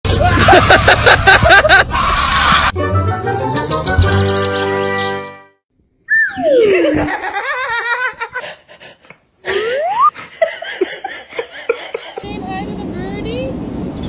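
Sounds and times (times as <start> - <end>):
laughter: 0.2 - 2.0, 6.4 - 8.6, 9.4 - 12.2.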